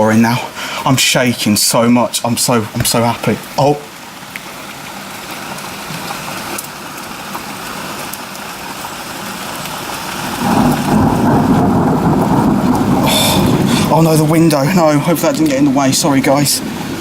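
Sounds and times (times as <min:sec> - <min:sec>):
heavy rain falling: 0:00.0 - 0:17.0
low rumble of thunder: 0:10.2 - 0:17.0.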